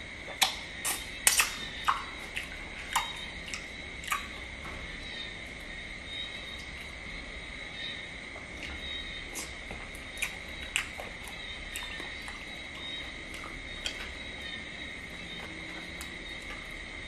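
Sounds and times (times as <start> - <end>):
person chewing: 0.2 - 4.8, 8.3 - 16.8.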